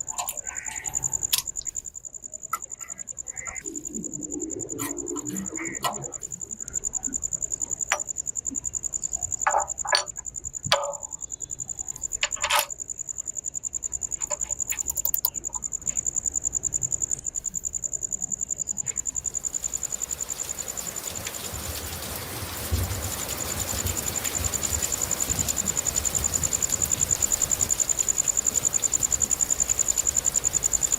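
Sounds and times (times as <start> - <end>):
insect trilling: 0.0 - 30.9
hiss: 19.0 - 30.9.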